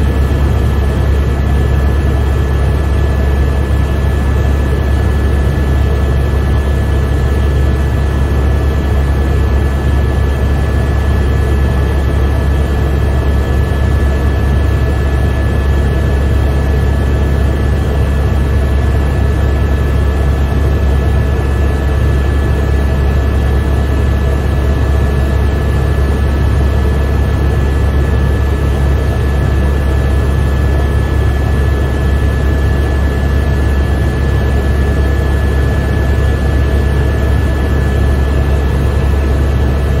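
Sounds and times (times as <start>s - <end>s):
high whine: 0.0s - 4.1s
helicopter cabin low drone: 0.0s - 40.0s.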